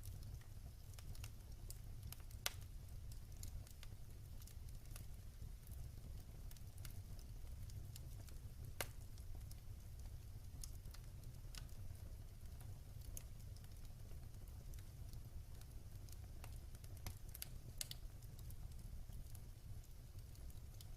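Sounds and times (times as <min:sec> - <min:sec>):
wood fire crackling: 0:00.0 - 0:20.9.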